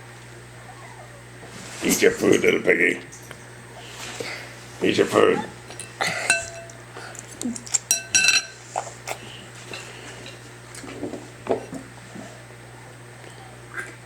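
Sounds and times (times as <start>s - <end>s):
bowl scraping: 5.4s - 6.8s.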